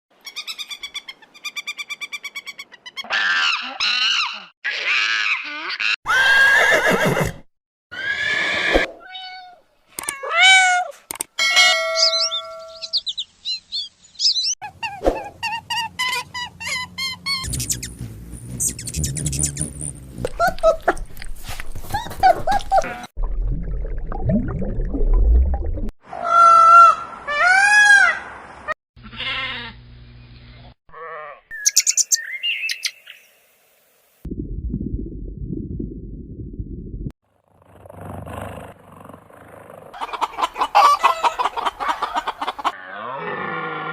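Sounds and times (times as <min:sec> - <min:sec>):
quick bird chirps: 0:17.0 - 0:20.2, 0:31.5 - 0:33.2.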